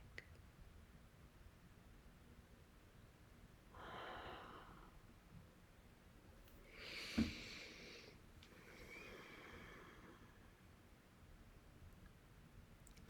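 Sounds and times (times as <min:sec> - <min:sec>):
faint breaths close to microphone: 0:06.6 - 0:10.8
short sharp thump: 0:07.2 - 0:07.4.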